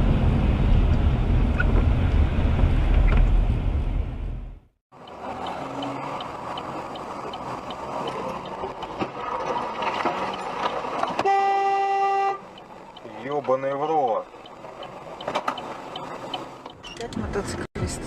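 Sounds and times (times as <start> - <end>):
vehicle driving noise: 0.0 - 18.0
faint regular ticking: 5.0 - 9.0, 12.4 - 16.8
car horn blast: 11.2 - 12.5.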